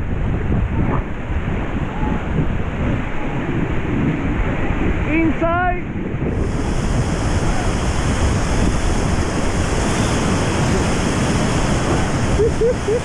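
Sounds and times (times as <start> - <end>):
wind buffeting microphone: 0.0 - 13.0
river rapids rushing: 6.4 - 13.0.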